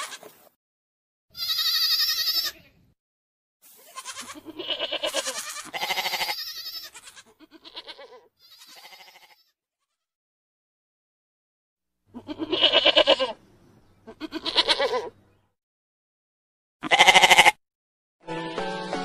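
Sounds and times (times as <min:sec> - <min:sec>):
goats bleating: 0:00.0 - 0:00.4, 0:01.3 - 0:02.8, 0:03.7 - 0:10.0, 0:12.1 - 0:13.4, 0:14.0 - 0:15.2, 0:16.8 - 0:17.6.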